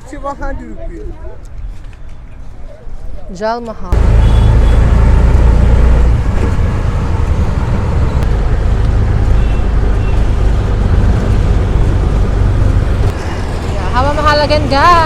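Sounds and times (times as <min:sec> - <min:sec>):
traffic noise: 0:00.0 - 0:15.0
deep vehicle rumble: 0:03.9 - 0:15.0.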